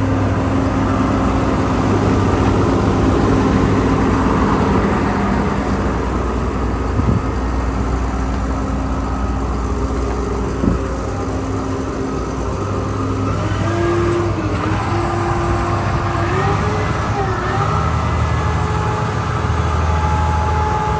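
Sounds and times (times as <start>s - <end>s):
diesel engine running: 0.0s - 20.9s
wavering whining tone: 0.0s - 20.9s.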